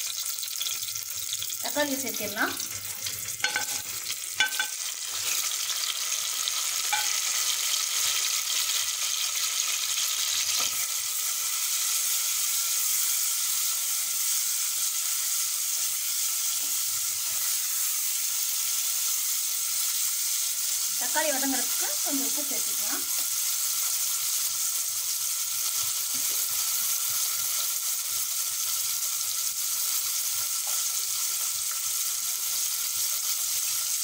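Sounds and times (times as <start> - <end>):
tomatoes sizzling in hot oil: 0.0 - 34.0
spatula knocking against pot: 3.4 - 3.8, 4.4 - 4.8, 6.9 - 7.2.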